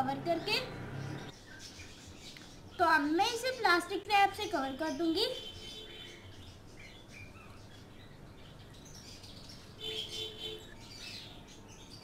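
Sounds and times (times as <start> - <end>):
bird chirps: 0.0 - 3.0
low background hum: 0.0 - 9.6.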